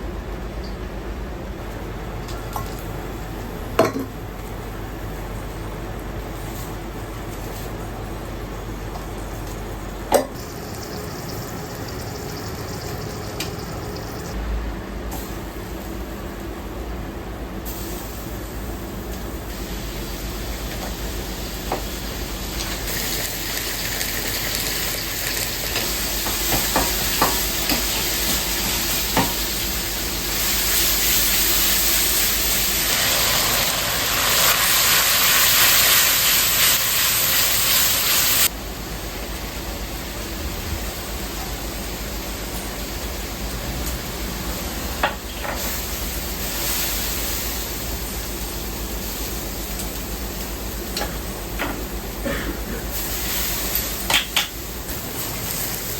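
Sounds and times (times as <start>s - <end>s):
low kitchen hum: 0.0s - 55.9s
food sizzling in a pan: 10.4s - 14.4s, 19.5s - 38.5s, 52.9s - 54.2s.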